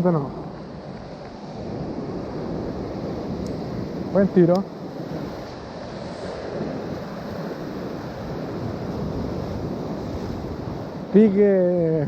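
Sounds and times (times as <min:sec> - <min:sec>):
sea surf: 0:00.0 - 0:12.0
wind buffeting microphone: 0:00.0 - 0:12.0.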